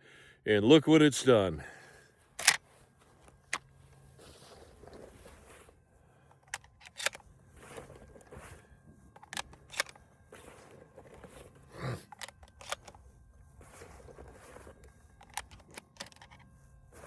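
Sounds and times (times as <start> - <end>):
shotgun action metallic clicks: 2.4 - 2.6, 6.4 - 7.2, 9.2 - 10.0.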